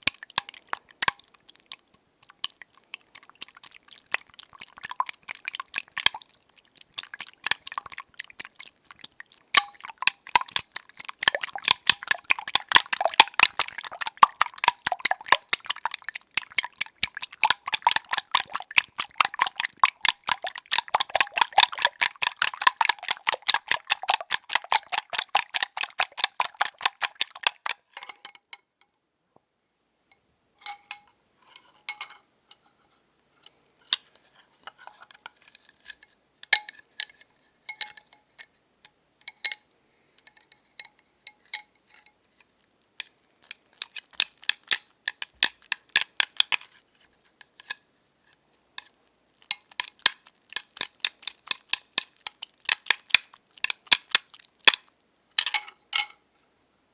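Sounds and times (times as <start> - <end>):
whisk clinking in a bowl: 9.6 - 27.8, 43.4 - 46.8, 49.4 - 54.8.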